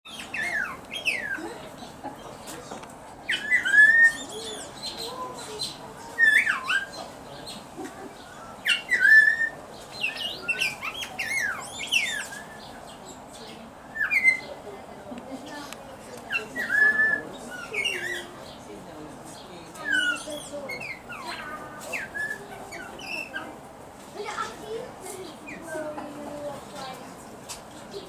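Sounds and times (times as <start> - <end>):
bird whistling calls: 0.1 - 1.4, 3.3 - 7.1, 8.3 - 12.8, 13.9 - 14.5, 16.3 - 18.3, 19.8 - 23.4.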